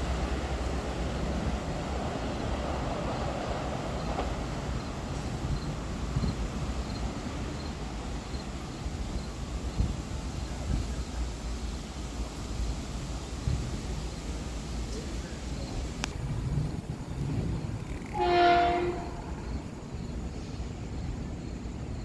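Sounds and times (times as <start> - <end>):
electric train rumbling past: 0.0 - 22.0
wind on microphone: 8.4 - 11.2, 15.6 - 19.7.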